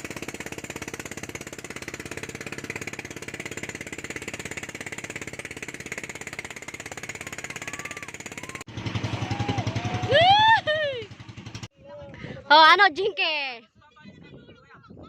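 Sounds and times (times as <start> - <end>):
boat engine chugging: 0.0 - 11.8.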